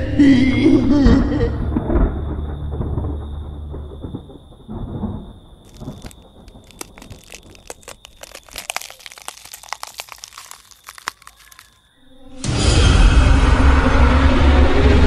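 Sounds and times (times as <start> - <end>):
irregular crackles and snaps: 5.7 - 11.8.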